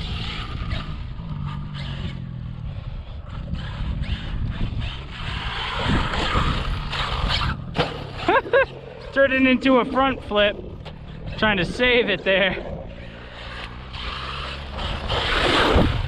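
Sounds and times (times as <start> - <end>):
electric motor whining: 0.0 - 16.0
tyres scrabbling on dirt: 3.3 - 16.0.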